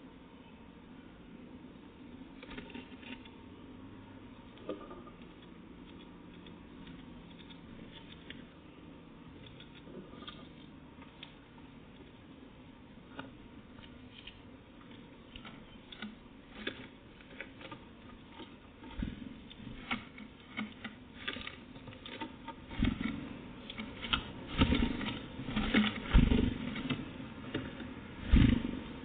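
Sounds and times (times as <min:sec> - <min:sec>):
small animal tapping and scrabbling: 0:13.1 - 0:29.0.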